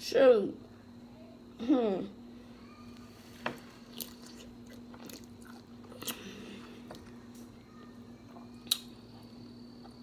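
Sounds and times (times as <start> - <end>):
steady low hum: 0.0 - 10.0
chewing and biting: 3.9 - 6.3.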